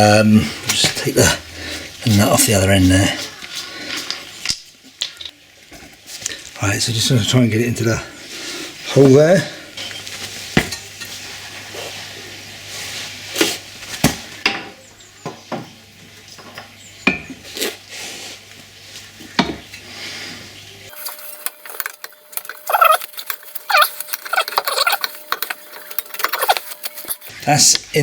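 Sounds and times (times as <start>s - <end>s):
metal scraping: 20.9s - 27.3s.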